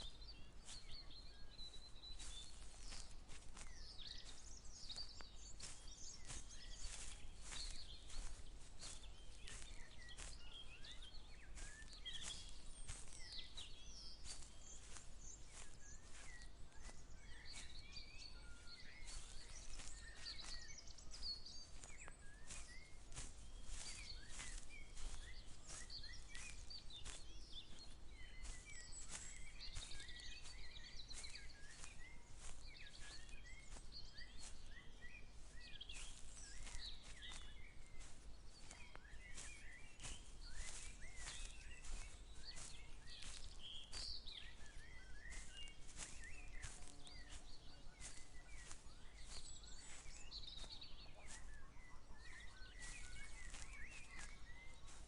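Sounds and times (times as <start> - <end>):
small birds chirping: 0.0 - 55.0
walking footsteps: 0.0 - 55.0.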